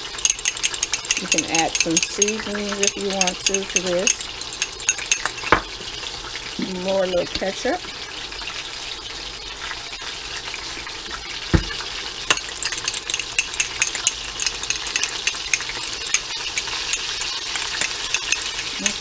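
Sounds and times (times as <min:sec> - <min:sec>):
spoon scraping glass: 0:00.0 - 0:05.7, 0:12.3 - 0:19.0
oil sizzling: 0:00.0 - 0:19.0
dull thump: 0:11.5 - 0:11.8.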